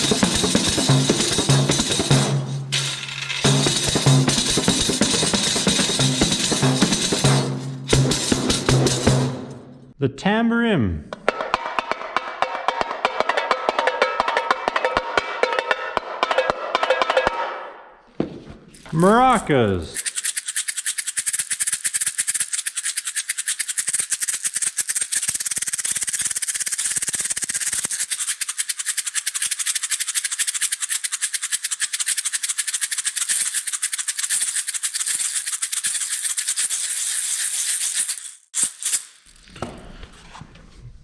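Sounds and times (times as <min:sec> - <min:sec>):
maracas rattling: 0:00.0 - 0:09.9, 0:18.7 - 0:39.4.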